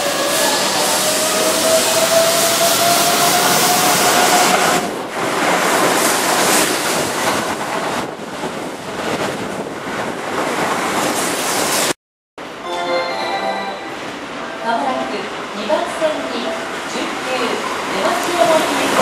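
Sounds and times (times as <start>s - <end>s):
electric train running past: 10.8s - 19.0s.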